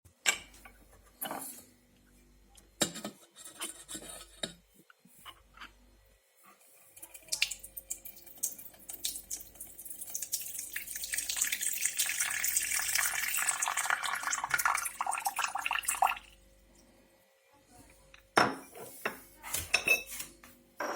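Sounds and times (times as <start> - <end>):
water pouring into vessel: 7.0 - 16.4.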